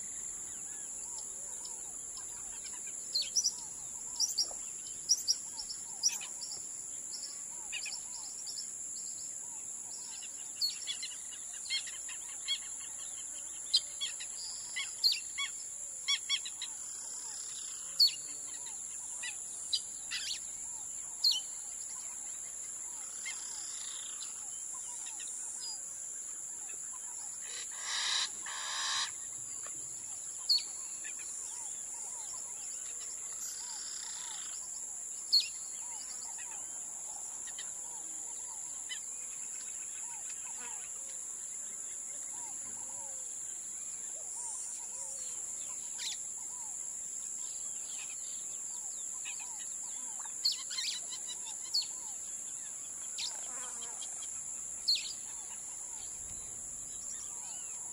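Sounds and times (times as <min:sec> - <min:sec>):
birds chirping and tweeting: 0:00.0 - 0:57.9.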